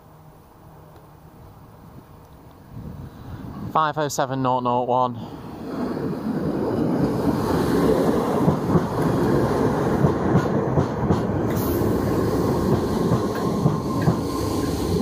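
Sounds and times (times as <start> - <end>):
train wheels rumbling on rails: 5.4 - 15.0
wheels clacking over rail joints: 5.7 - 15.0.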